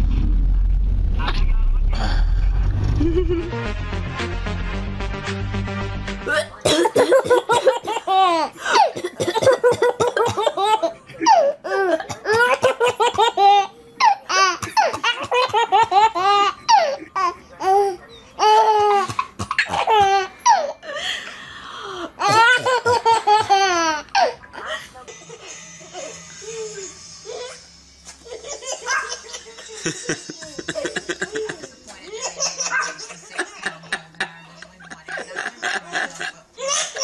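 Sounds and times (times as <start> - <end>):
baby laughing: 6.3 - 8.9, 9.6 - 20.7, 22.2 - 24.7, 28.2 - 34.2.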